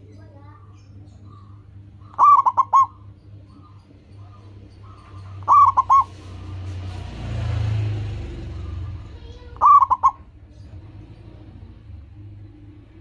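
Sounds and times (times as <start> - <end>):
low rumble with hiss: 0.0 - 13.0
dove cooing: 0.6 - 13.0.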